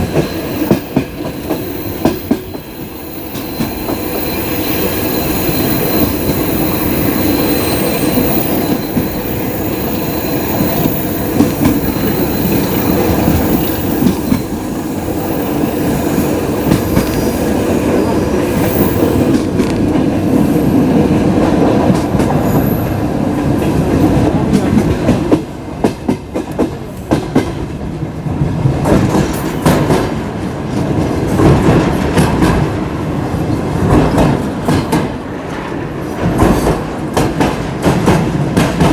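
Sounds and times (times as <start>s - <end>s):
faint wheel squeals: 3.1s - 11.1s.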